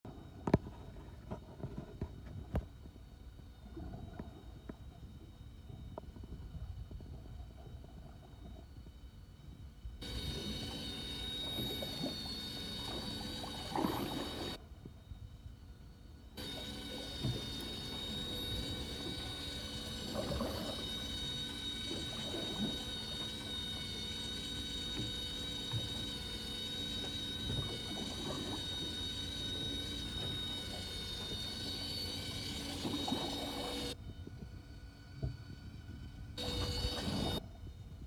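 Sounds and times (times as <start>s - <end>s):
small motor whining: 1.9s - 14.6s, 15.6s - 38.0s.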